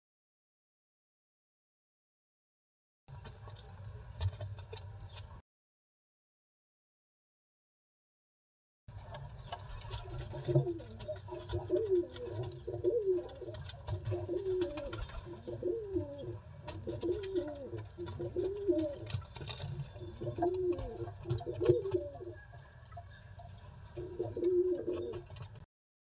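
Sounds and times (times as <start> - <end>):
pigeon cooing: 9.9 - 22.8, 23.9 - 25.6.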